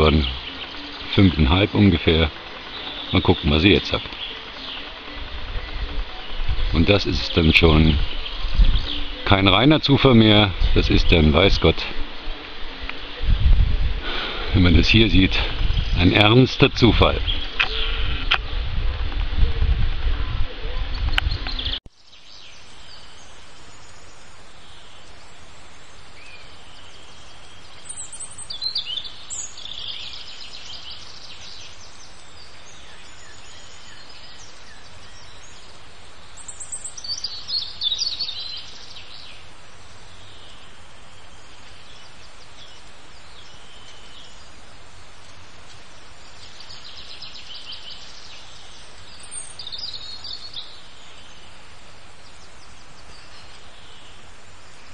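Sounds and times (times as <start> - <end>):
birds chirping and trilling: 0.0 - 54.9
steady background hiss: 0.0 - 54.9.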